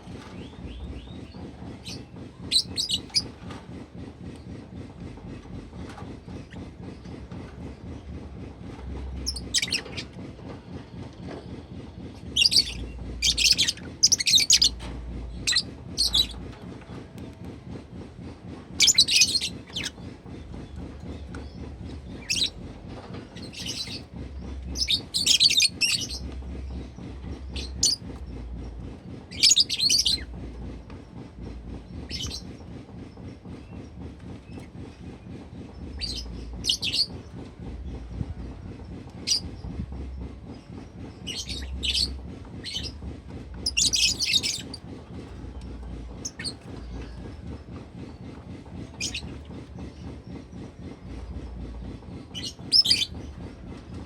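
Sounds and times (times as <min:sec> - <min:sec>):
steady low hum: 0:00.0 - 0:54.0
lovebird chirping and chattering: 0:09.2 - 0:10.0, 0:12.4 - 0:14.8, 0:15.4 - 0:16.4, 0:18.8 - 0:20.0, 0:22.1 - 0:22.6, 0:24.7 - 0:26.8, 0:43.6 - 0:45.2, 0:46.2 - 0:46.6, 0:52.4 - 0:53.3.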